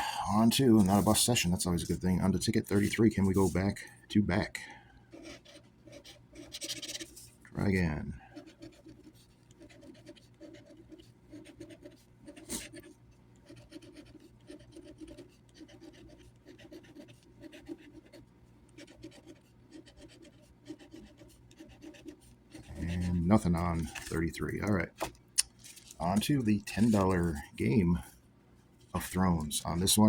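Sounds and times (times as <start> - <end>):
scratch-off ticket scraping: 0.4 - 3.8, 5.2 - 12.9, 18.8 - 27.8.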